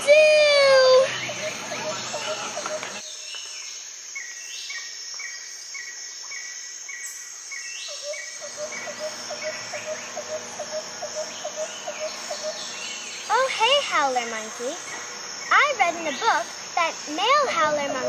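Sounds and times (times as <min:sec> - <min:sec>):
insect drone: 0:00.0 - 0:18.0
high animal calls: 0:08.0 - 0:18.0
low chirps: 0:08.0 - 0:18.0.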